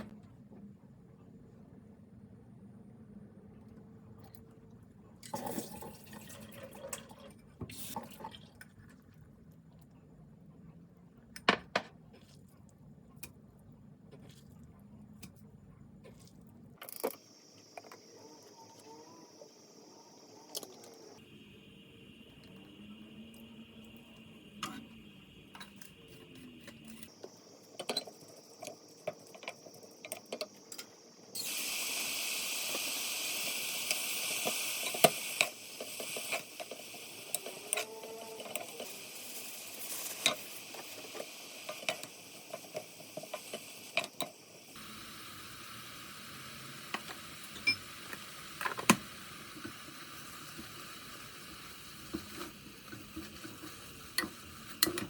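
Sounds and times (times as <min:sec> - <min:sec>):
food sizzling in a pan: 0:17.2 - 0:55.0.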